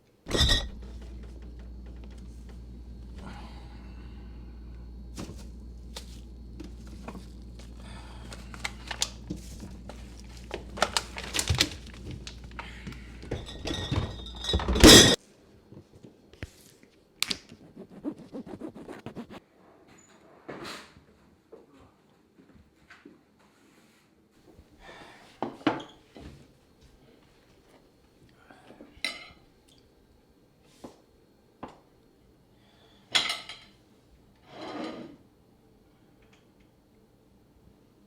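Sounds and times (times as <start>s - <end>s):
low hum: 0.3s - 14.6s.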